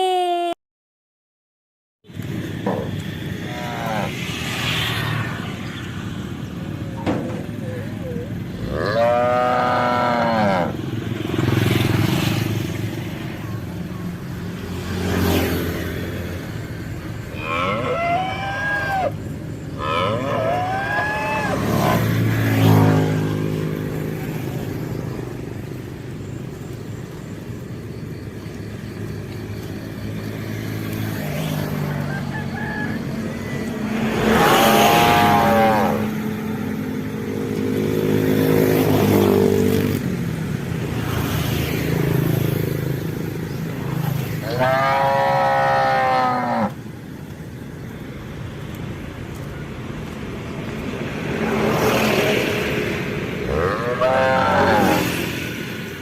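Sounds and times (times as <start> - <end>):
cattle mooing: 3.4 - 4.1, 8.6 - 10.8, 17.3 - 19.2, 19.8 - 22.1, 34.7 - 36.2, 44.4 - 46.8, 53.4 - 55.1.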